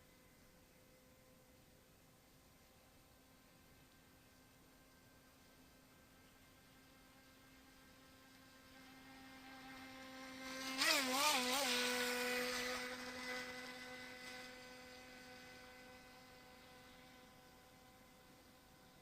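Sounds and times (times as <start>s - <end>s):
electric boat motor whining: 6.8s - 18.4s.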